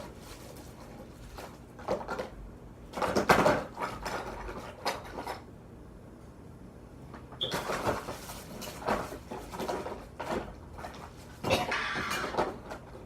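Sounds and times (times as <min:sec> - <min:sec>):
plastic containers clattering: 0:07.4 - 0:13.0.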